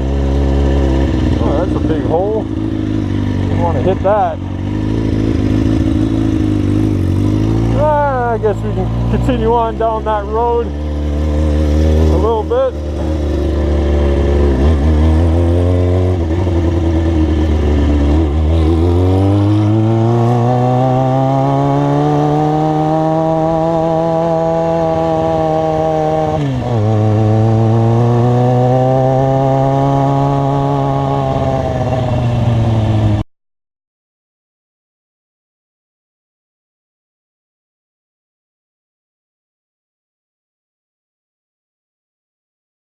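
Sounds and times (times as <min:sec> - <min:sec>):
motorcycle engine accelerating: 0:00.0 - 0:33.2.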